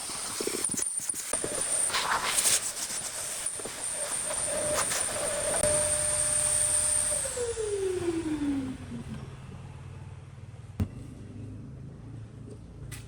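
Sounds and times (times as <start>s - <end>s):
power tool motor whining: 0.0s - 9.3s.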